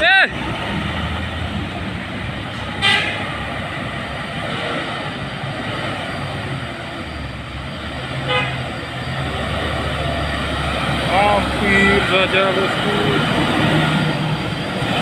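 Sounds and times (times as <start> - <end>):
diesel truck engine under load: 0.0 - 15.0
truck horn toot: 2.7 - 3.3, 8.2 - 8.8.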